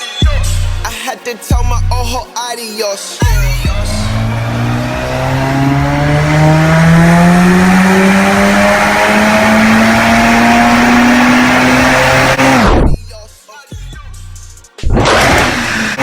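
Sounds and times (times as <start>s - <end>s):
car engine accelerating hard: 3.7s - 13.0s, 14.8s - 16.0s.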